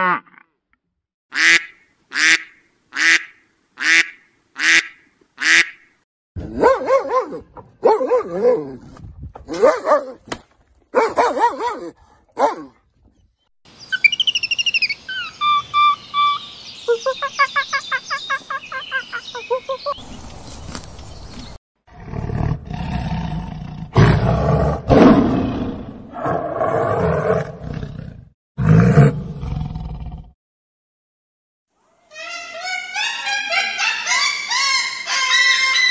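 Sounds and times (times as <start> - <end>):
high chirping and trilling calls: 13.7 - 21.6
tiger roaring and snarling: 21.9 - 30.3.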